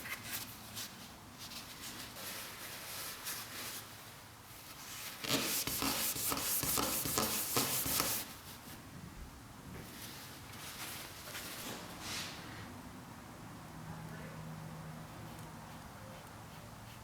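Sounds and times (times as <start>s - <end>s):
hand rubbing a surface: 4.8s - 8.4s.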